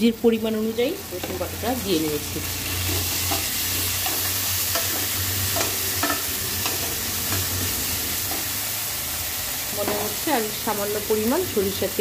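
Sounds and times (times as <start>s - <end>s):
shallots sizzling in hot oil: 0.0s - 12.0s
spatula scraping and tapping pot: 2.8s - 8.6s.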